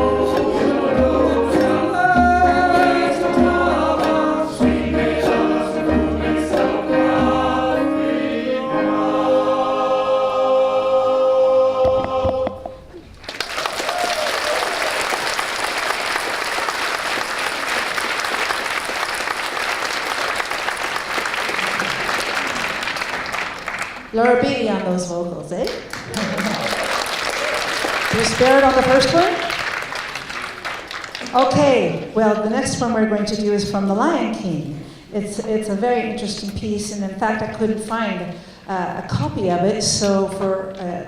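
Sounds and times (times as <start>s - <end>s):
choir singing: 0.0s - 12.9s
audience applauding: 13.2s - 24.2s, 25.8s - 31.4s.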